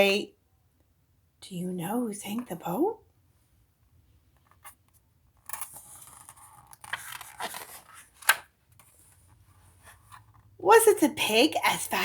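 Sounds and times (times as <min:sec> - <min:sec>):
paper page rustling: 0:05.6 - 0:10.3.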